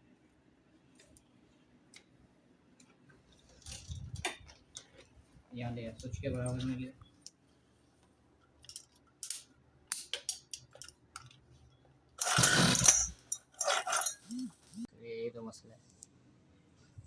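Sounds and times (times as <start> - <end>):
recoil starter pull rasping: 12.2 - 14.8.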